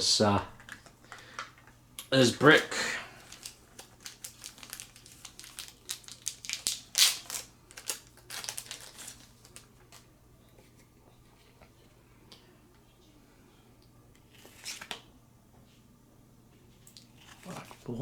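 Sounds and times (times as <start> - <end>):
plastic packaging crinkling: 3.2 - 10.1.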